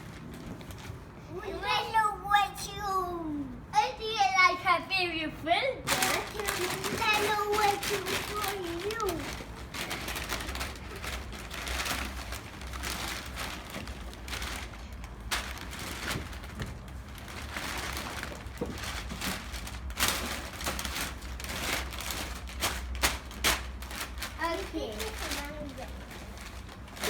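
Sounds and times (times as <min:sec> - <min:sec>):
packaging rustling and crinkling: 0:05.9 - 0:27.0.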